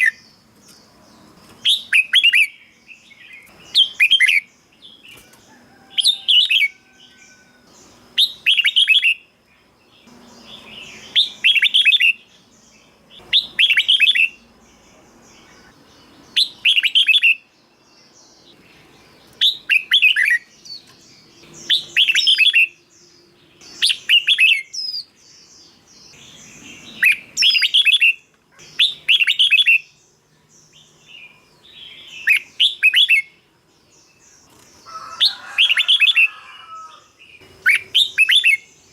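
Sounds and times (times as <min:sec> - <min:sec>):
bulbul singing: 0:00.0 - 0:38.9.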